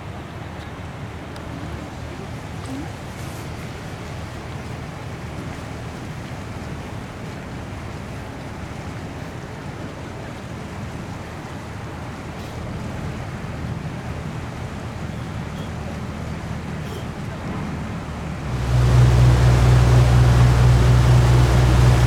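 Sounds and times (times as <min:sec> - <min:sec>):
sea waves: 0:17.9 - 0:22.0
wind rumbling on microphone: 0:18.4 - 0:22.0.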